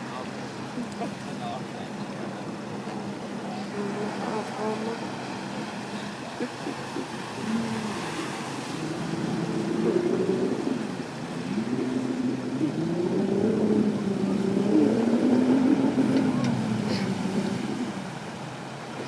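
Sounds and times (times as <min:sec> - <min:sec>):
engine revving: 0:07.4 - 0:18.0.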